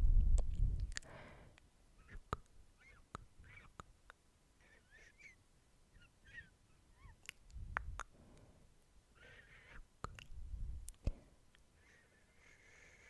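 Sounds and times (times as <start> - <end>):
squeaky lip and mouth noises: 0.3 - 1.1, 2.0 - 8.2, 9.2 - 11.2
wet tongue clicks: 0.3 - 2.5, 3.1 - 4.2, 7.2 - 8.1, 10.0 - 11.6.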